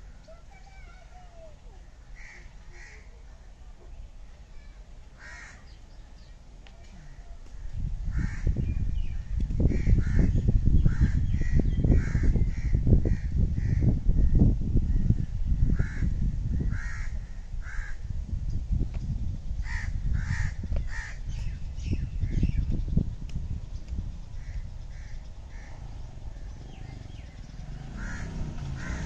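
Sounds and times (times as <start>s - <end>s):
harsh bird calls: 4.6s - 6.4s, 7.0s - 18.0s, 19.6s - 29.0s
loud low rumbling: 21.4s - 29.0s.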